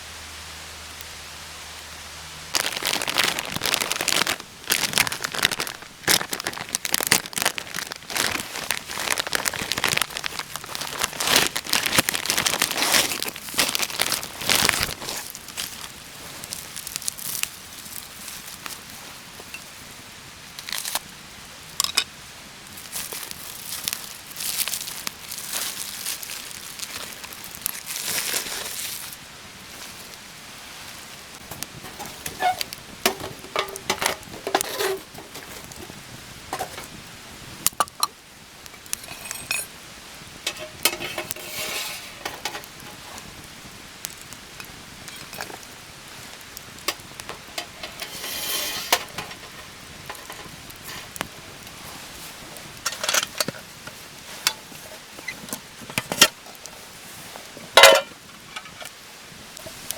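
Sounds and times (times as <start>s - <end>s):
metal cookware clinking: 39.0s - 39.7s, 40.5s - 42.6s, 52.9s - 53.6s, 57.8s - 58.9s.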